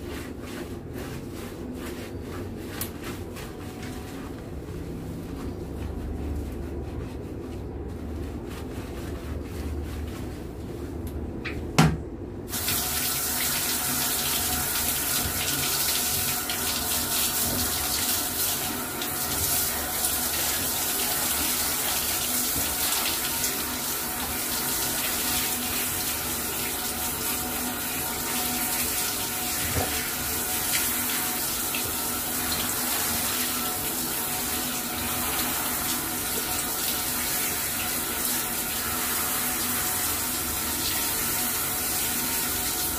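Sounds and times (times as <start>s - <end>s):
tap water running: 12.5s - 42.9s.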